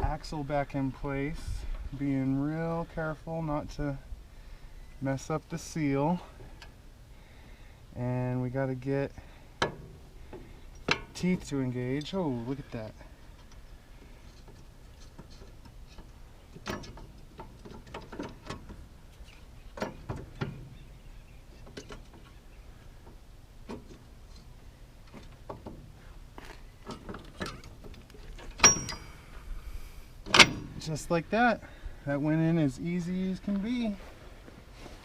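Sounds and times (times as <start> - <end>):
light metallic clicks and knocks: 13.3 - 20.7, 26.8 - 29.2.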